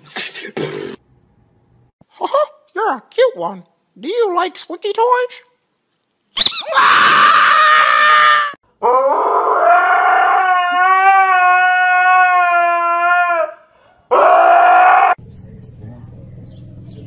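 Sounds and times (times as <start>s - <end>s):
dog howling: 6.7s - 15.2s.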